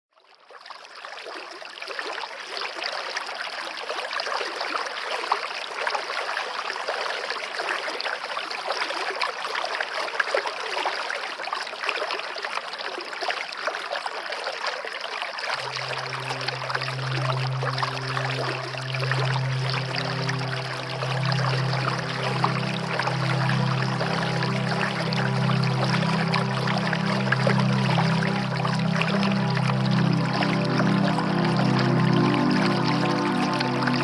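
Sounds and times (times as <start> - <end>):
stream running and splashing: 0.2 - 34.0
low music drone: 15.6 - 34.0.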